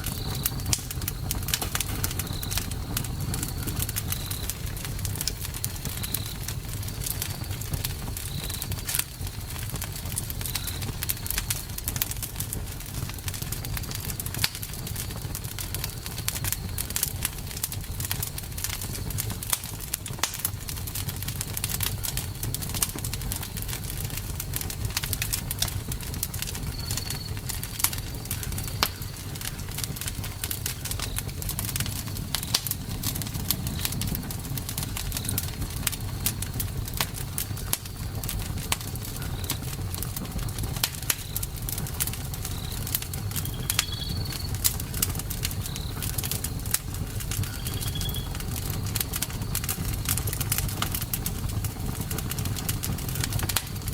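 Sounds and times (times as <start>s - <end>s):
campfire flames rumbling: 0.0s - 53.9s
fire crackling and popping: 0.0s - 53.9s
faint high chirps: 43.4s - 44.6s, 47.5s - 48.4s.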